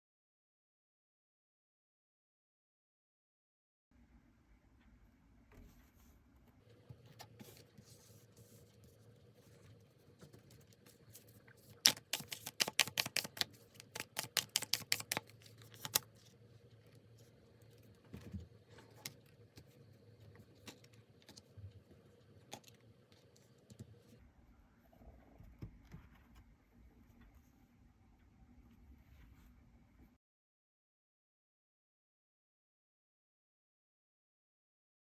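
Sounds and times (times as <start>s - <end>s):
cards shuffling: 10.6s - 16.2s.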